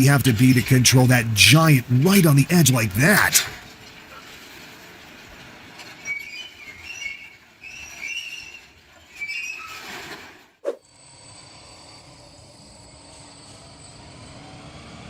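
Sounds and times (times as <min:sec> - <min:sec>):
excavator metal squealing: 0:05.8 - 0:10.3.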